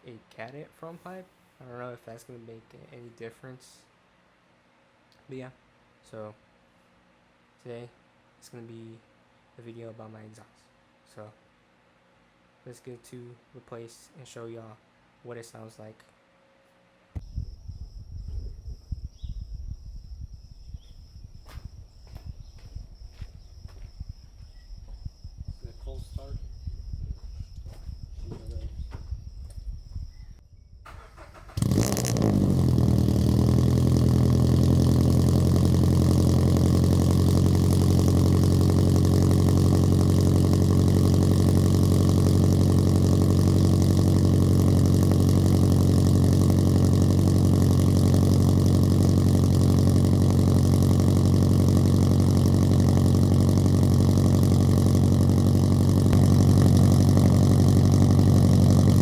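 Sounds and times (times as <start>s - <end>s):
car engine starting: 30.9s - 59.0s
car engine idling loudly: 31.6s - 59.0s.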